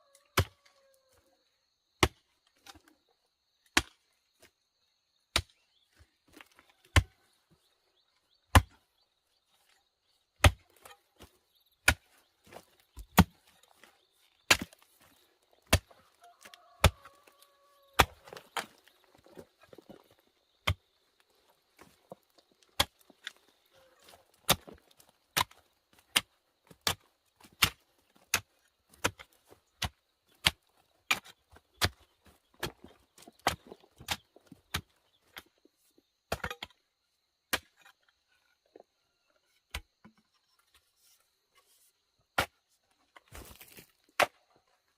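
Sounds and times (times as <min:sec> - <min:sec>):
blade chopping wood: 0:11.8 - 0:13.5.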